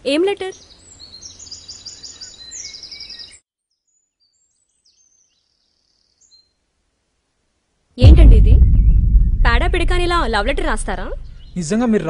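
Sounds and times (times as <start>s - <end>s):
outdoor background noise: 0.0s - 12.0s
birds chirping: 0.4s - 3.4s, 8.1s - 12.0s.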